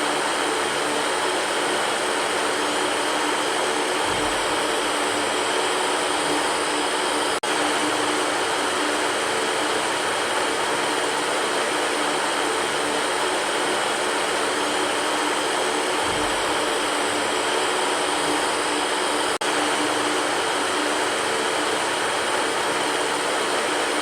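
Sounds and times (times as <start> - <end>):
electric fan humming: 0.0 - 24.0.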